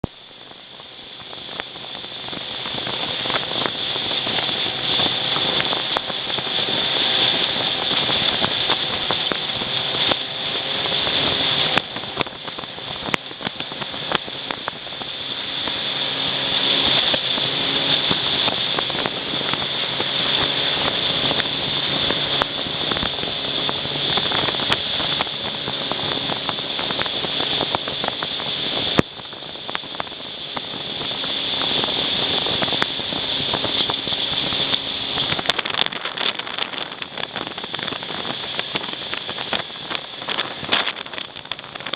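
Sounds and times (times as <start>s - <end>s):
boat engine drone: 0.0s - 41.9s
rushing wind and water: 0.0s - 41.9s.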